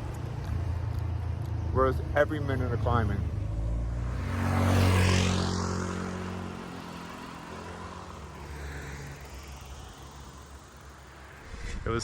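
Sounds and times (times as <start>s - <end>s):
vehicle engine passing by: 2.2s - 10.4s.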